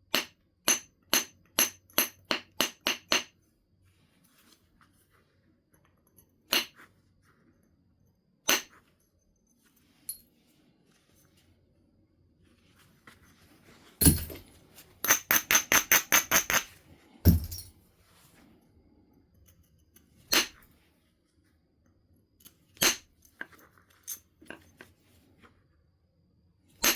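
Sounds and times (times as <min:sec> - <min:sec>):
stone knapping strikes: 0:14.0 - 0:14.5, 0:17.3 - 0:17.6.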